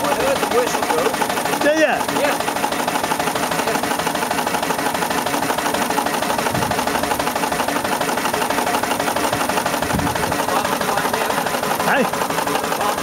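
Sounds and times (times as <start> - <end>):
steam engine clattering: 0.0 - 13.0.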